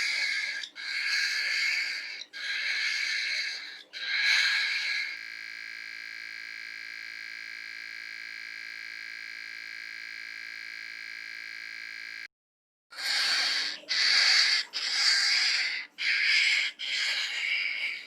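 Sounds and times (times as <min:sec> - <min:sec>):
electronic buzz: 0:05.1 - 0:12.3.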